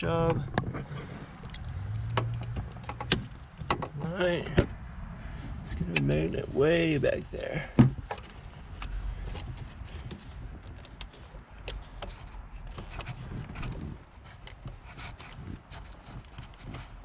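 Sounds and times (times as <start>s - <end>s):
low handling rumble: 0.0s - 10.9s.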